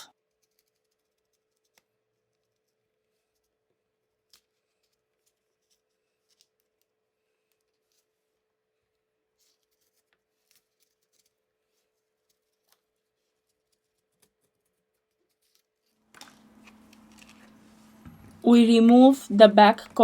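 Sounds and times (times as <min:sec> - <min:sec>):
rustling noise: 0:09.4 - 0:19.1
faint steady hum: 0:16.1 - 0:20.0.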